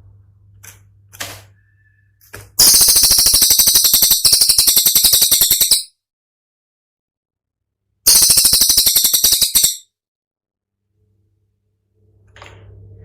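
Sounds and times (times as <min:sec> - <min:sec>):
songbird fast high-pitched notes: 0:02.6 - 0:05.9, 0:08.1 - 0:09.8.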